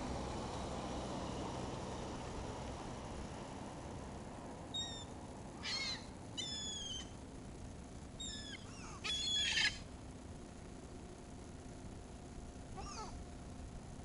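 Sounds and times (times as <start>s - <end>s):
gulls calling: 4.7s - 7.2s, 8.2s - 9.8s.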